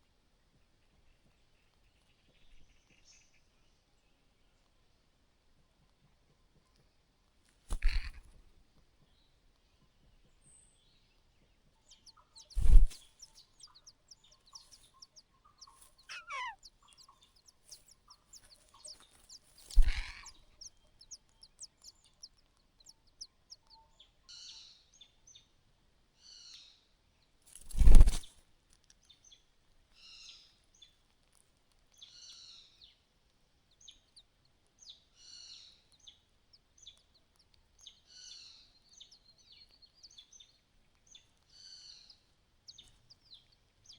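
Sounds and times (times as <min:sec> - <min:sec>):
bird chirping: 0:10.0 - 0:25.5, 0:31.9 - 0:43.9
small ticks: 0:11.8 - 0:24.2, 0:27.4 - 0:35.1, 0:35.8 - 0:43.9.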